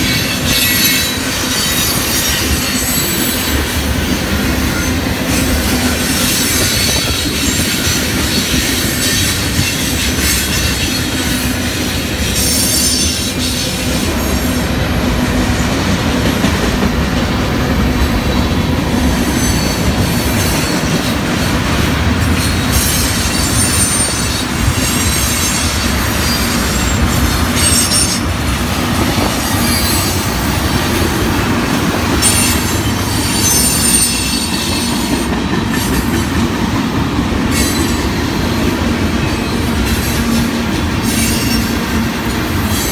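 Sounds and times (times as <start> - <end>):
train rolling past: 0.0 - 42.9
high wheel squeals: 22.4 - 28.3, 29.4 - 30.8, 32.2 - 35.3.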